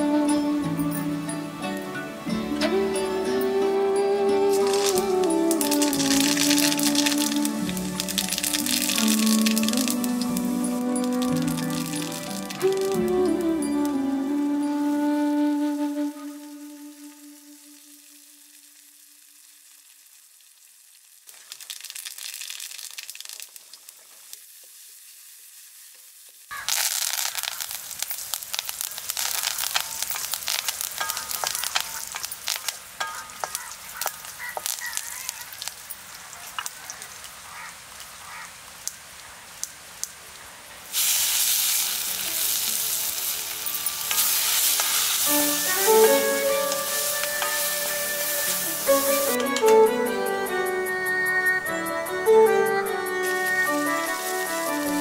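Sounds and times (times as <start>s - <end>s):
hot oil sizzling in a wok: 4.3s - 13.6s, 15.9s - 55.0s
crackling pops: 4.5s - 14.0s, 17.0s - 24.9s, 25.9s - 49.8s.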